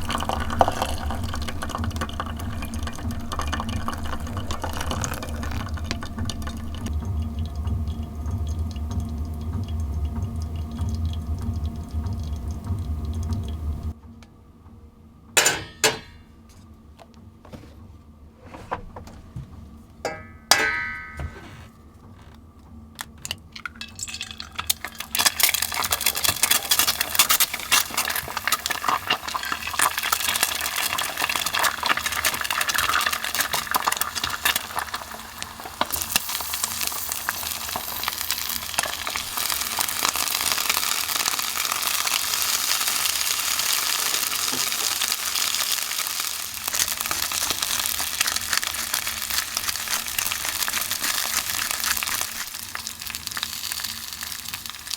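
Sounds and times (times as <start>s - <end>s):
short ringing clink: 20.1s - 21.5s
food sizzling in a pan: 24.0s - 54.9s.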